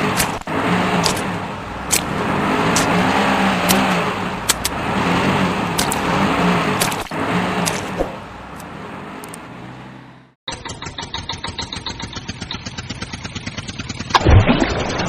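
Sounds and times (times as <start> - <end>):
vehicle engine running: 0.0 - 14.2
small engine chugging rapidly: 10.5 - 14.2.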